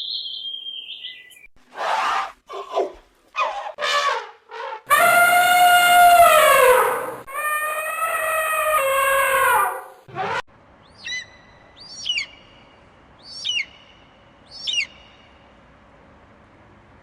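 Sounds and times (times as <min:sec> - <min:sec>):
high wavering animal calls: 0:04.8 - 0:10.4
drawn-out pitched call: 0:04.9 - 0:10.0.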